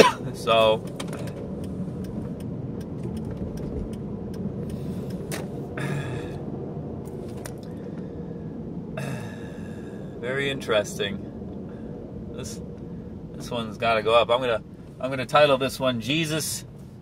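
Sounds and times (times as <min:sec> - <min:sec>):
car cabin rumble: 0:00.0 - 0:17.0
light clicks and rattles: 0:00.6 - 0:05.5.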